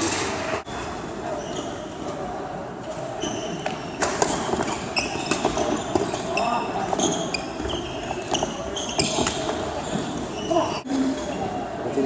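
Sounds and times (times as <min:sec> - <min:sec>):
shoes squeaking on court floor: 0:00.0 - 0:11.6
hall background murmur: 0:00.0 - 0:12.0
racket hitting shuttlecock: 0:03.6 - 0:06.2.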